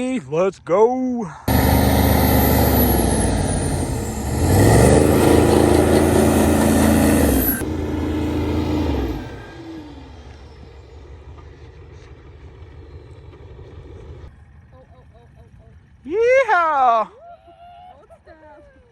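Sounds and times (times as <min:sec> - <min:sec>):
truck engine revving hard: 0:01.5 - 0:11.4.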